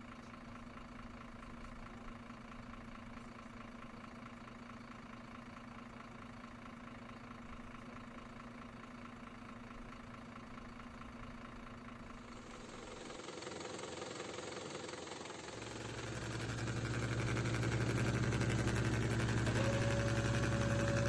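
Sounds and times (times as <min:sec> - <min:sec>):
model vehicle engine running: 0:11.9 - 0:21.0.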